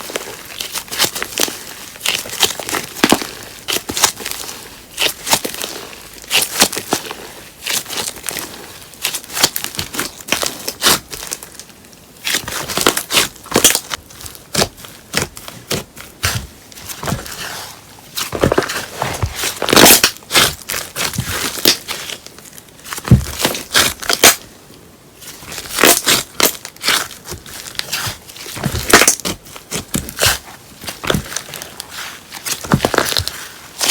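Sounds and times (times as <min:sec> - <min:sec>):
slime squished by hand: 0:12.2 - 0:17.6, 0:18.2 - 0:24.4.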